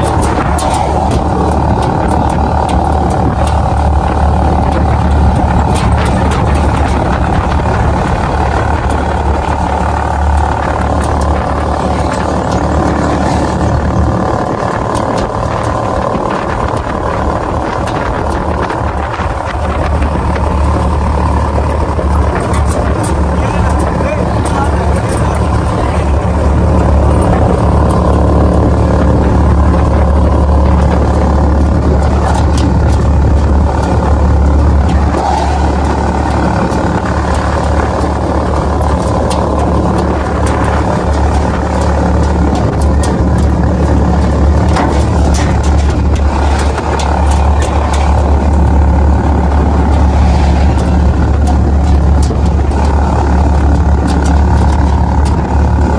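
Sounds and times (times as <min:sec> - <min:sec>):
engine running with low hum: 0:00.0 - 0:55.9.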